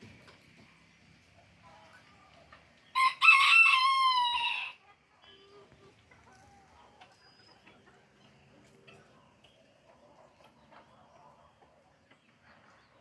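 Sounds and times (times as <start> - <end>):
rooster crowing: 3.0 - 4.8.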